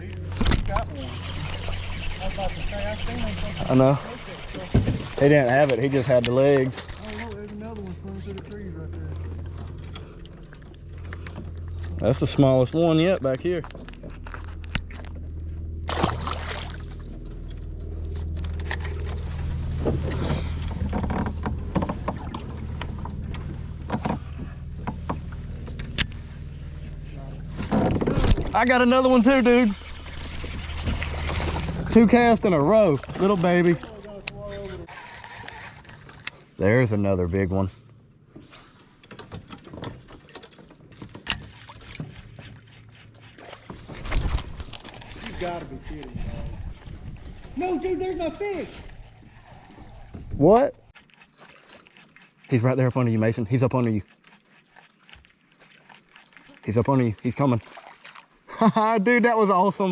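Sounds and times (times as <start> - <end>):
water swishes: 0.0 - 8.2, 14.2 - 36.6, 41.4 - 58.5
kayak knocks: 19.8 - 25.8.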